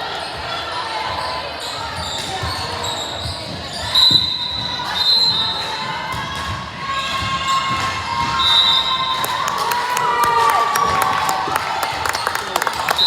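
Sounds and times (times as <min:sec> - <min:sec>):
sneakers squeaking: 0:00.2 - 0:05.6
crowd voices echoing: 0:09.2 - 0:13.0.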